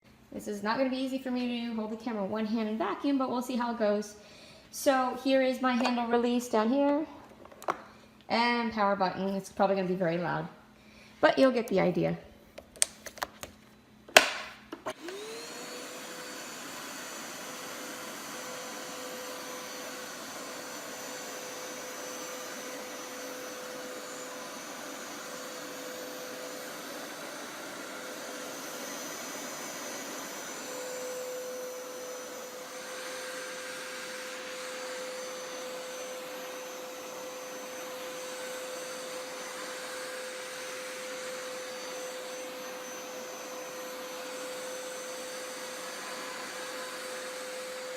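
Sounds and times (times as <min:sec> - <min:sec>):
carpet cleaner motor whine: 0:14.1 - 0:47.9.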